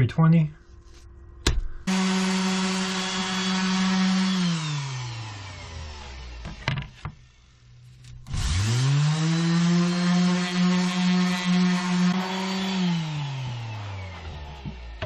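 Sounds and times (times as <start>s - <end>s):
electric sander humming: 1.9s - 6.9s, 8.3s - 15.0s.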